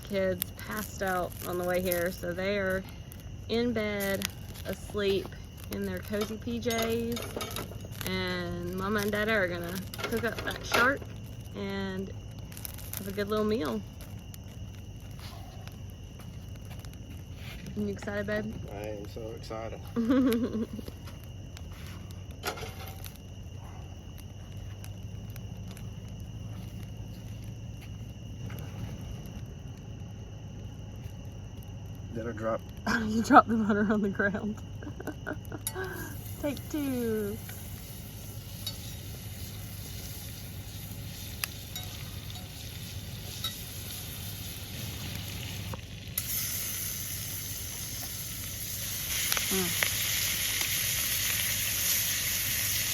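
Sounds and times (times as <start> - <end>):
low background hum: 0.0 - 52.1
crickets trilling: 0.0 - 52.9
small clicks and crackles: 0.0 - 52.9
sharp pops and clicks: 24.1 - 30.1, 43.3 - 51.5
butter sizzling in a pan: 35.6 - 52.9.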